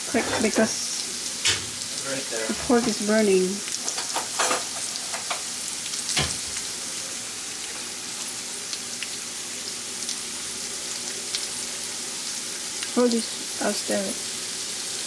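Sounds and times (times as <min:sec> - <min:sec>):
pork sizzling in a pan: 0:00.0 - 0:15.0
knock on pan: 0:01.4 - 0:01.8, 0:06.2 - 0:06.6.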